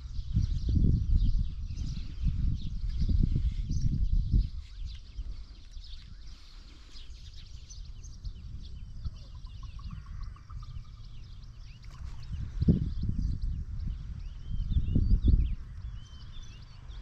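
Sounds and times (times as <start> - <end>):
small birds chirping: 0.0 - 17.0
wind rumble on microphone: 0.0 - 17.0
fast even bird pips: 8.9 - 12.9.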